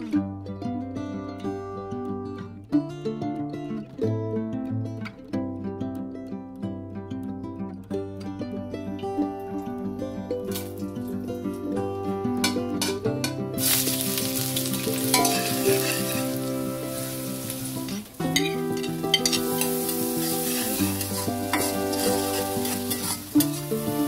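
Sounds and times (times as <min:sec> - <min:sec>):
soft background music: 0:02.5 - 0:24.0
food sizzling in hot oil: 0:13.6 - 0:24.0
spatula scraping metal pan: 0:13.6 - 0:24.0.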